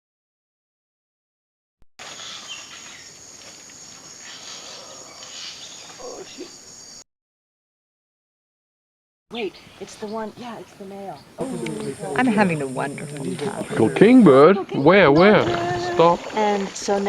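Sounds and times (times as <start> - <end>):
bird calls: 2.0 - 7.0, 9.3 - 16.1
high insect drone: 2.1 - 7.0, 10.0 - 14.4.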